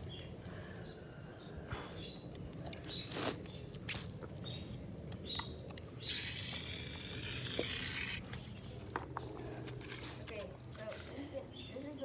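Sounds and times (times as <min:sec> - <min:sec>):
spray hiss: 0:06.1 - 0:08.2.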